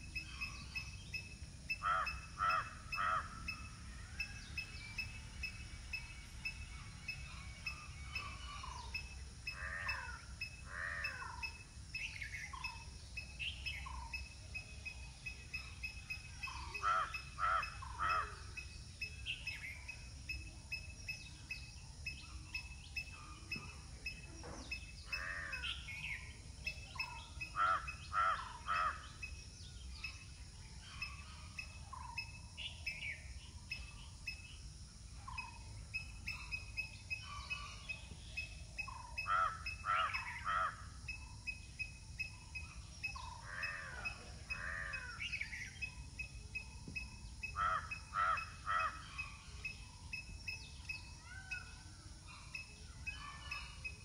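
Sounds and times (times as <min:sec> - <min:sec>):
low background noise: 0:00.0 - 0:54.0
harsh bird calls: 0:01.7 - 0:05.6, 0:36.2 - 0:41.2, 0:47.0 - 0:50.1.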